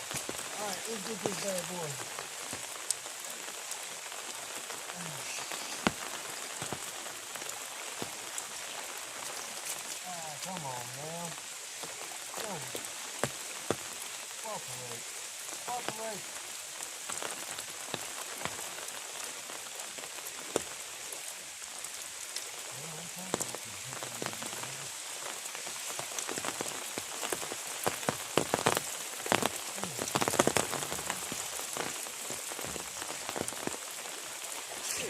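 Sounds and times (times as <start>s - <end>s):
heavy rain: 0.0s - 35.0s.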